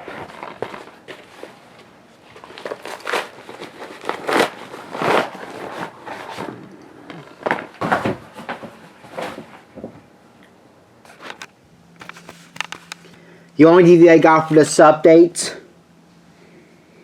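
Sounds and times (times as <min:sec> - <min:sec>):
packaging rustling and tearing: 0:00.0 - 0:09.6.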